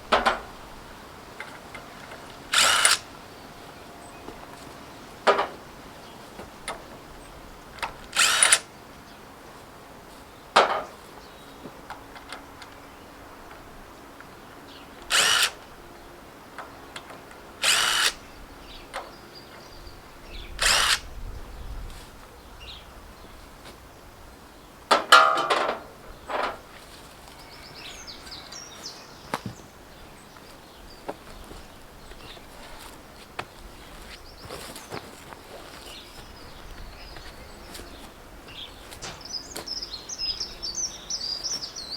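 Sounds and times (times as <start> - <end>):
handheld power tool bursts: 2.5 - 3.1, 8.1 - 8.7, 15.1 - 15.6, 17.6 - 18.2, 20.6 - 21.0.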